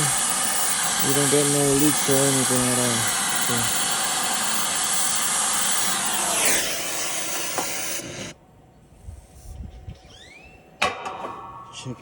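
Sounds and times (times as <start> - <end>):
torch flame hissing: 0.0 - 8.4.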